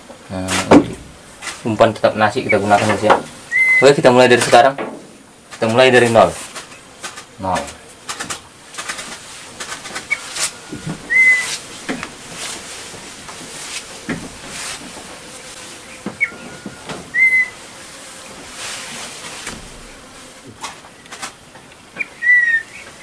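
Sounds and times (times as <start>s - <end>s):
soft rushing hiss: 0.0s - 23.0s
whistled bird calls: 3.5s - 3.9s, 11.1s - 11.6s, 16.2s - 17.6s, 22.0s - 22.8s.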